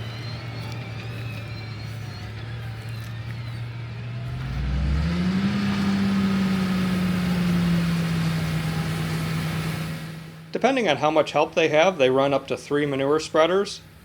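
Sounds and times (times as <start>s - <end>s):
tractor diesel engine revving: 0.0s - 12.0s.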